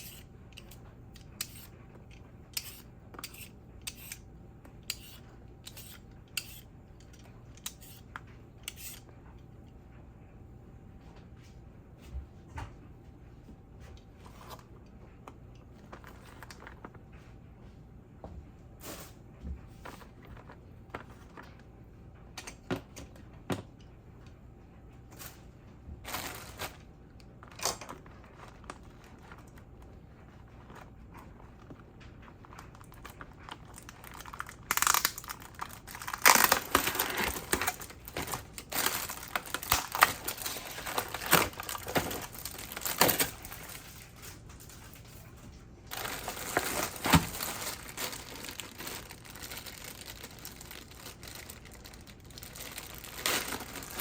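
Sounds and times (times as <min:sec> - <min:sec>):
plastic packaging crinkling: 0:26.0 - 0:54.0.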